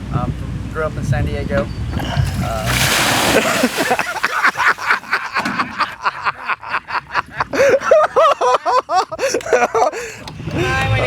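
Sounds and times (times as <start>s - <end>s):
people laughing hard: 3.2s - 10.2s.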